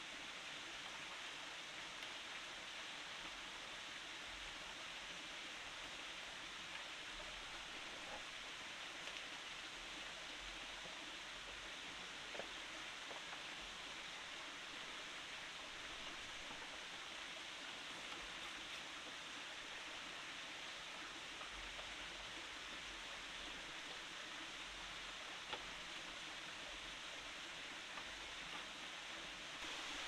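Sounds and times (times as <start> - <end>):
forest stream rushing: 0.0 - 30.0
faint clicks: 9.0 - 9.3, 25.2 - 26.0.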